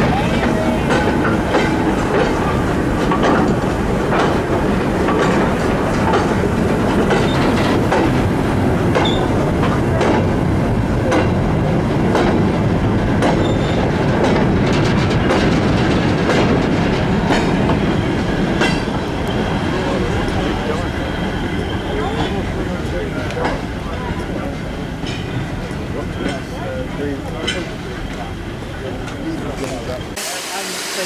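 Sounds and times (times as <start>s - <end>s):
wheels clicking over rail joints: 0.0s - 10.4s
train running on track: 0.0s - 31.0s.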